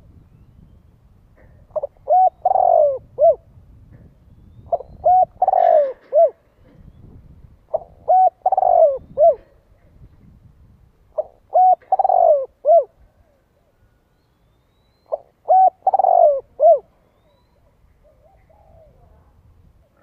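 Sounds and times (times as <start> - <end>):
dove cooing: 1.4 - 3.5, 4.7 - 6.9, 7.7 - 9.7, 11.1 - 13.8, 15.1 - 19.3.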